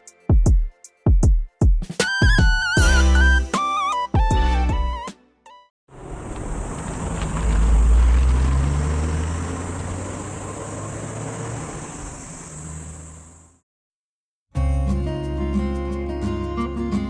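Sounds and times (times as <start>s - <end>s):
car engine running: 5.9s - 13.6s
road noise: 5.9s - 13.6s.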